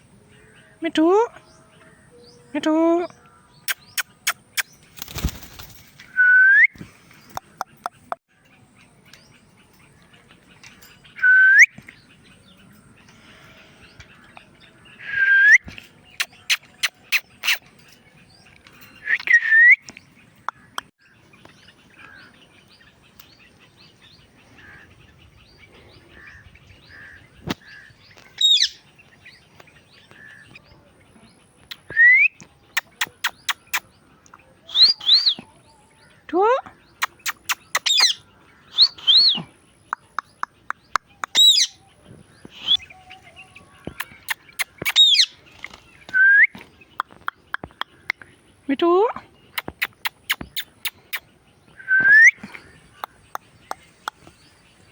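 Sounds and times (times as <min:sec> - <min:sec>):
quick sharp clicks: 0:03.6 - 0:05.8
parakeet squawking: 0:28.4 - 0:28.8.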